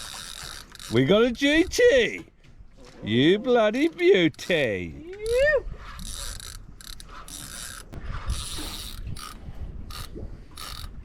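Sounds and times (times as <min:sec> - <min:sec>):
fishing reel ratcheting and whirring: 0:00.0 - 0:01.8, 0:06.0 - 0:11.0.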